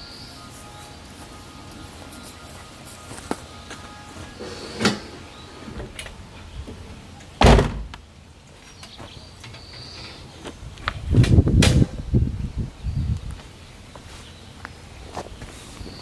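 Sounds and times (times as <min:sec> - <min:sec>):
door shutting with a bang: 0:07.4 - 0:08.0
dull knocks and handling noise: 0:07.4 - 0:08.0.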